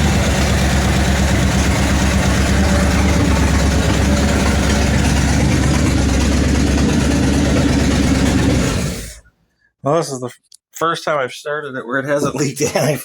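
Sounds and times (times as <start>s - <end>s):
car engine idling loudly: 0.0s - 9.3s.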